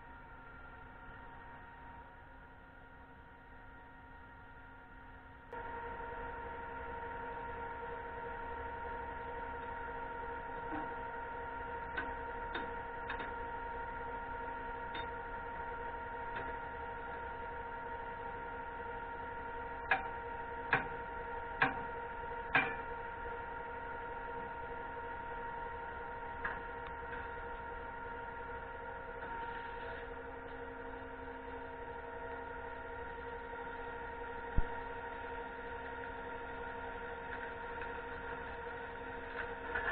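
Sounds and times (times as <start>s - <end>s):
steady machine hum: 0.0s - 39.9s.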